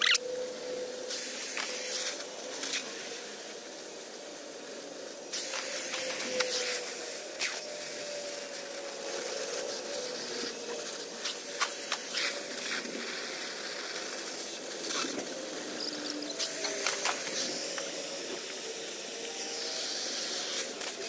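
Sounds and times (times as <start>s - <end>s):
cutting torch hissing: 0.0s - 21.0s.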